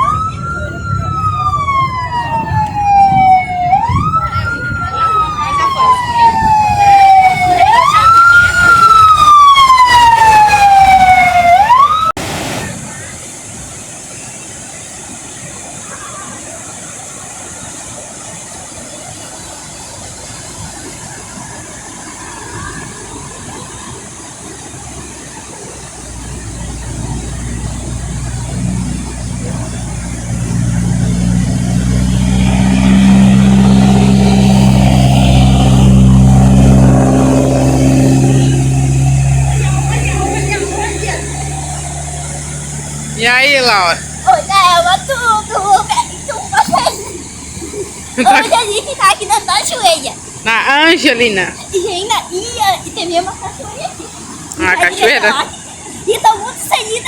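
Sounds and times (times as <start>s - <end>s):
siren wailing: 0.0s - 12.6s, 21.0s - 49.3s
vehicle engine running: 25.6s - 56.8s
low rumble: 26.8s - 48.2s.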